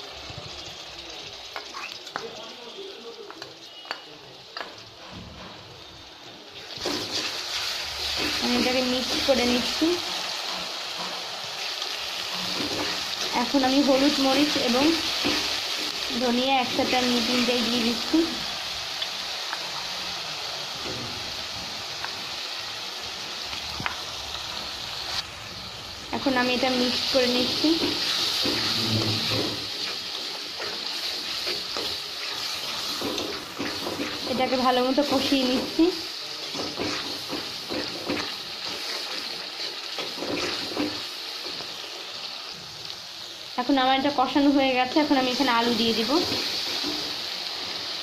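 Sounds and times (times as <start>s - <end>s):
onions sizzling in hot oil: 0.0s - 48.0s
metal spatula scraping pan: 27.6s - 35.7s.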